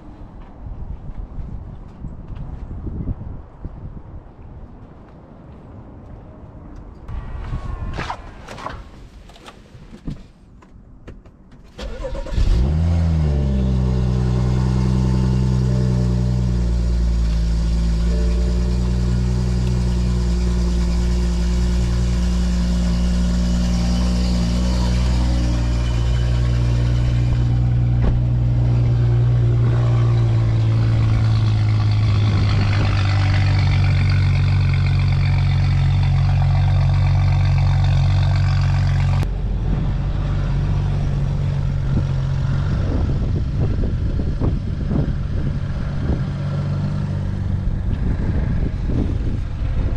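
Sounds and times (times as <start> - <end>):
car engine starting and idling: 11.7 - 46.2.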